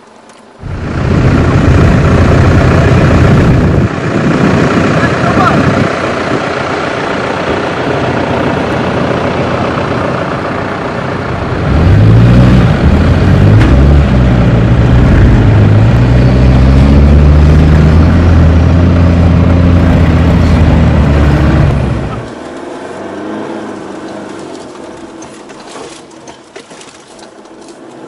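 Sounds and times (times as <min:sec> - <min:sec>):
steady rushing noise: 0:00.6 - 0:10.0
off-road engine revving: 0:00.6 - 0:28.0.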